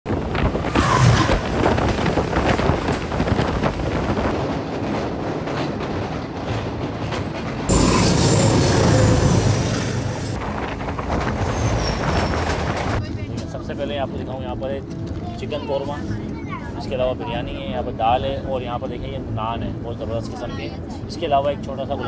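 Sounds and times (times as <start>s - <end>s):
train wheels rumbling on rail: 0.1s - 14.0s.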